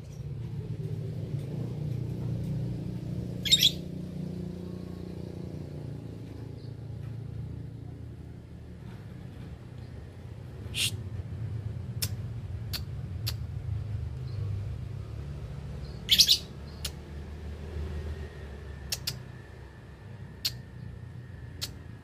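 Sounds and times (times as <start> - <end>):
lovebirds chirping: 3.4 - 3.9, 15.8 - 17.0.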